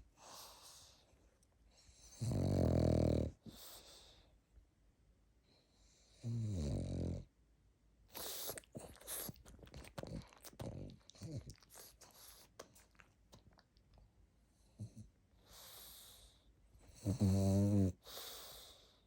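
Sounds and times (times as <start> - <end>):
dog snoring: 1.8 - 4.1, 5.8 - 7.3, 8.1 - 11.8, 14.7 - 19.0.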